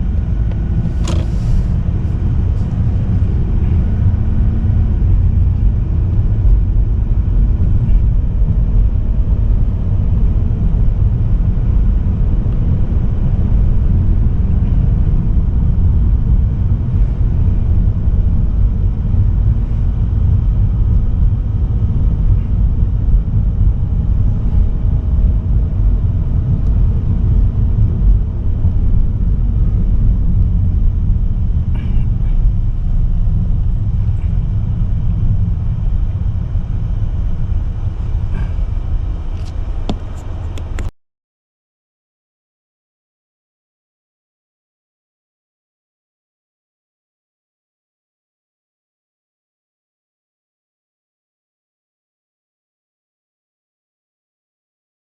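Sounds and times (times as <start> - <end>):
car driving road rumble: 0.0 - 40.9.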